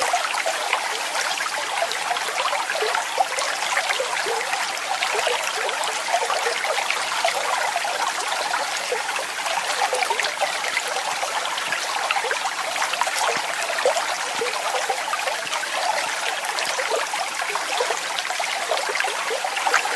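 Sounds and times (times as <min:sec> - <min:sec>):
water flowing and splashing: 0:00.0 - 0:19.9.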